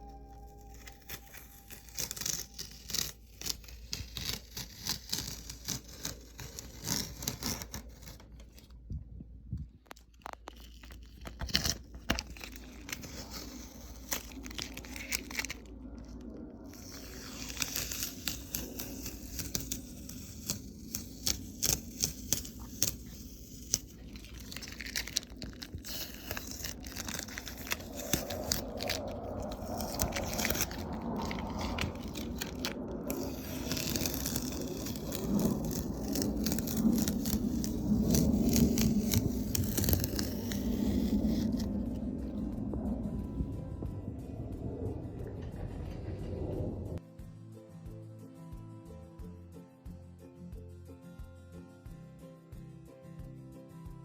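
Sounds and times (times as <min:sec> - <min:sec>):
paintbrush scratchy strokes: 0:00.0 - 0:08.6, 0:11.9 - 0:45.6.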